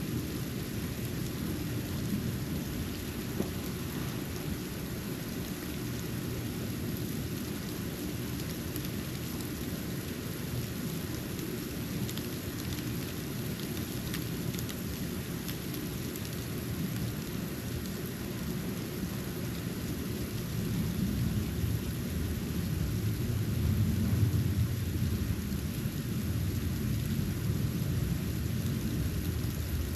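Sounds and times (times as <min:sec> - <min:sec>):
low outdoor rumble: 0:00.1 - 0:08.6, 0:20.6 - 0:29.9.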